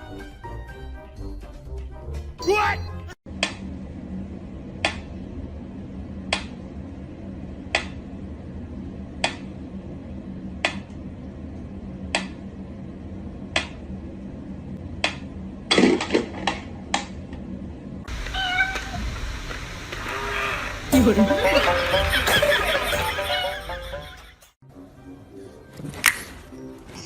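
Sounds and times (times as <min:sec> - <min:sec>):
steady low hum: 0:03.3 - 0:18.4.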